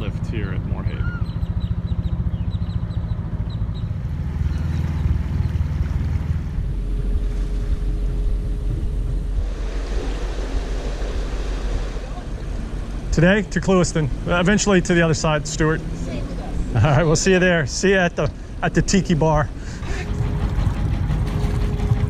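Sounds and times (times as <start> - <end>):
boat engine running: 0.0 - 10.6, 19.7 - 22.0
wind and water rushing: 3.9 - 7.9, 9.2 - 16.1, 19.7 - 22.0.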